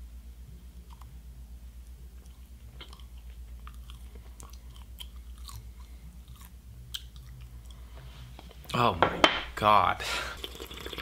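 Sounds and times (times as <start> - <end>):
low steady hum: 0.0 - 11.0
person chewing: 0.8 - 1.2, 2.1 - 8.6.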